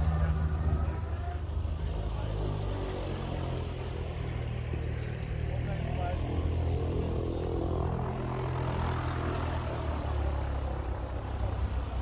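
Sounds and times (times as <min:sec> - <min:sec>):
propeller airplane engine running: 0:00.0 - 0:12.0.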